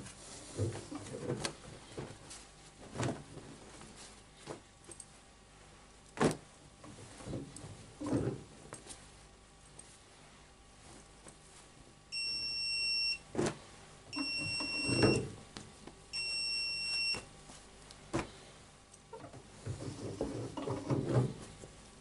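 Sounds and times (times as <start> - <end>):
washing machine beeping: 12.1 - 13.3, 14.1 - 15.4, 16.1 - 17.3.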